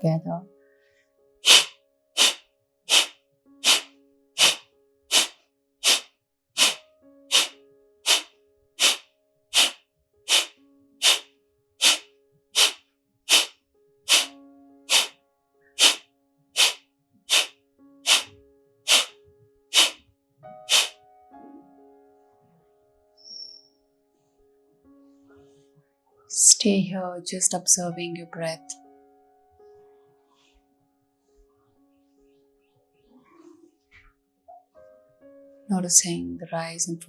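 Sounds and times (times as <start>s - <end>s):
soft background music: 0.0s - 5.8s, 6.8s - 37.0s
forceful nasal exhalations: 1.4s - 12.0s, 12.6s - 13.5s, 14.1s - 14.3s, 14.9s - 15.2s, 15.8s - 16.0s, 16.6s - 17.5s, 18.1s - 18.3s, 18.9s - 19.1s, 19.7s - 20.0s, 20.7s - 21.0s.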